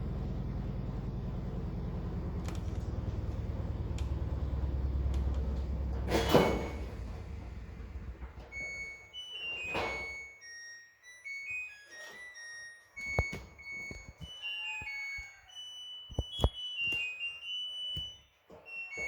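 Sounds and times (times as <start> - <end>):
low pulsing motor drone: 0.0 - 8.6.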